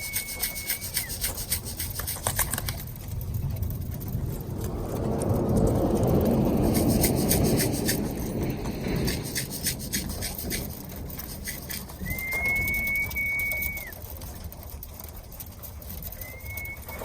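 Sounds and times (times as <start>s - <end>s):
steady high whistle note: 0.0s - 1.3s, 11.4s - 14.0s, 16.2s - 17.0s
low rumble: 2.6s - 13.9s
sharp clicks: 9.0s - 14.0s.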